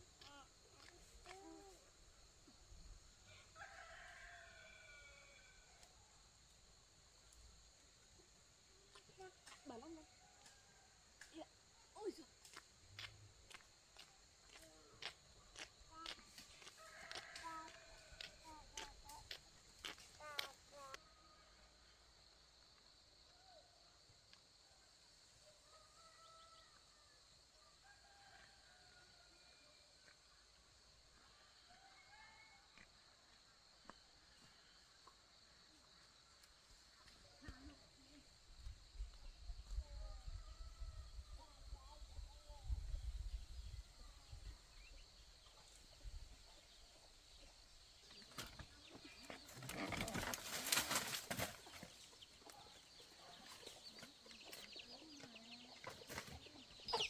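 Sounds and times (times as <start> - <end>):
rooster crowing: 3.3 - 5.8, 16.6 - 18.6
faint chickens calling: 48.1 - 57.0.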